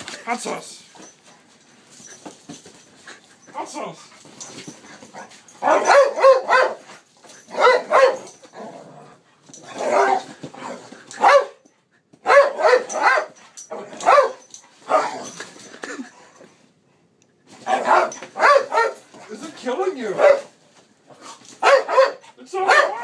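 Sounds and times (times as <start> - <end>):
dog barking in bursts: 5.6 - 6.9, 7.5 - 8.3, 11.2 - 11.6, 12.2 - 15.2, 17.7 - 19.1, 20.2 - 20.5, 21.6 - 23.0.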